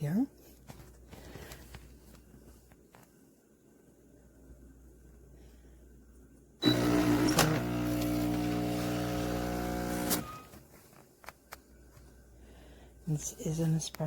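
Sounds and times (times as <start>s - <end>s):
espresso machine pump buzzing: 6.6s - 10.5s.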